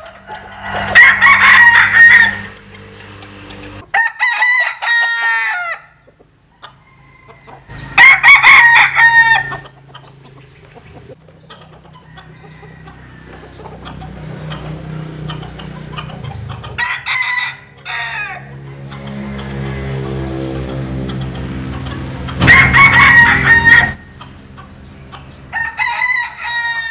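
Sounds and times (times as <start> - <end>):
rooster crowing: 0.0 - 2.7, 3.9 - 6.0, 6.8 - 9.7, 12.0 - 13.6, 16.7 - 18.7, 22.4 - 24.2, 25.5 - 26.9
low hum: 18.5 - 24.2.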